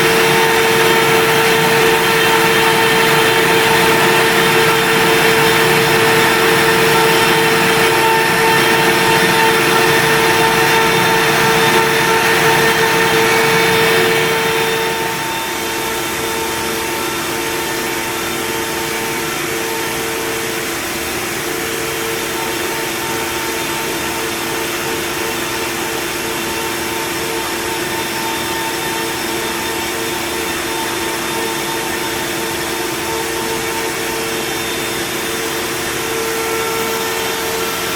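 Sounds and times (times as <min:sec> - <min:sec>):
hissing cutting noise: 0:00.0 - 0:19.9
spindle motor whine: 0:00.0 - 0:37.9.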